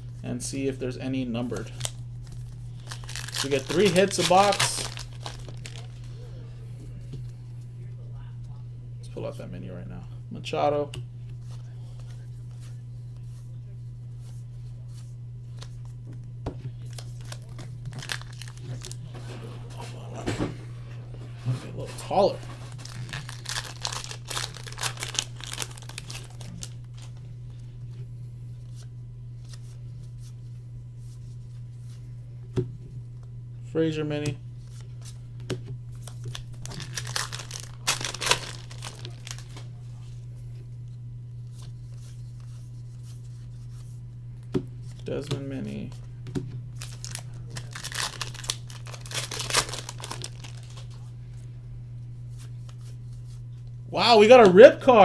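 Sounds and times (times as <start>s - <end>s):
low electrical hum: 0.0s - 55.0s
cards being handled: 1.4s - 6.2s, 14.2s - 19.9s, 21.8s - 27.2s, 34.6s - 40.1s, 41.4s - 51.1s
foil wrapper crinkling and tearing: 1.5s - 6.2s, 16.8s - 19.1s, 22.2s - 27.2s, 36.0s - 39.7s, 46.7s - 51.0s.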